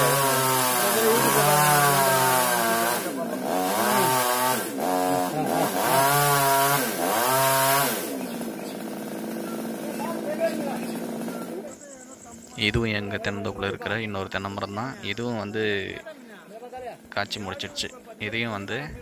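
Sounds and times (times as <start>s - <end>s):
chainsaw cutting wood: 0.0s - 11.6s.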